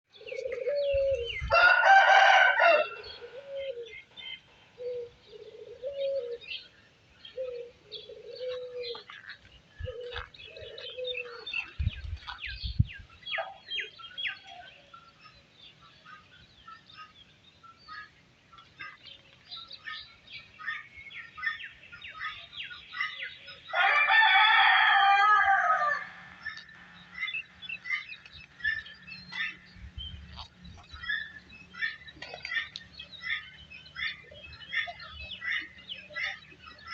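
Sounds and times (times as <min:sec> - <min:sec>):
rooster crowing: 0:01.5 - 0:03.8, 0:23.7 - 0:26.2
small birds chirping: 0:02.8 - 0:36.9.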